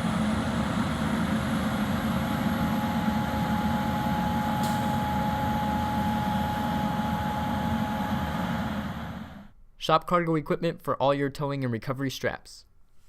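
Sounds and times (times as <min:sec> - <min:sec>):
diesel engine rumbling: 0:00.0 - 0:09.5
faint steady whine: 0:00.0 - 0:09.6.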